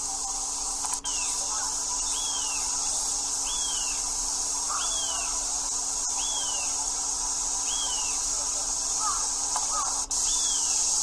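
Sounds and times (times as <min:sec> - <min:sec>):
steady high hiss: 0:00.0 - 0:11.0
bird calling: 0:01.0 - 0:06.8, 0:07.6 - 0:08.3, 0:09.0 - 0:11.0.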